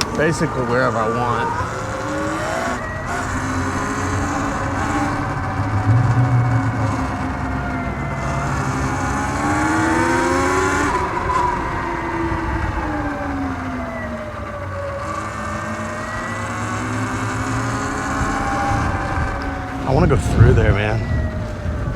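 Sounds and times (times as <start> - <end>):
electric motorbike motor whining: 0.0 - 21.9
wind noise: 1.4 - 13.5, 18.7 - 21.9.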